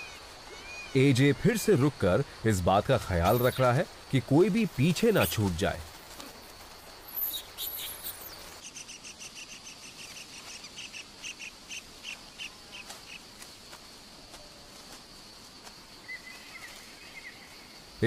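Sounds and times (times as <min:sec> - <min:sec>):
high-pitched insect drone: 0:03.1 - 0:08.4.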